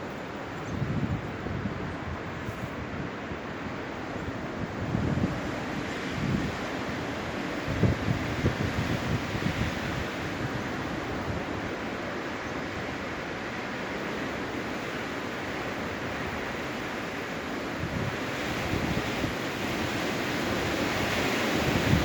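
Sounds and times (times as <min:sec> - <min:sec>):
wind buffeting microphone: 0:00.0 - 0:11.8, 0:17.8 - 0:22.0
strong wind blowing: 0:00.0 - 0:22.0.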